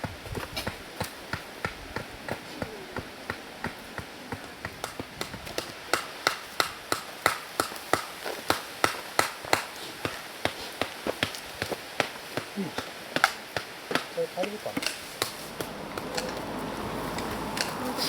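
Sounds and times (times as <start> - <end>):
hand tool striking stony ground: 12.0 - 16.5.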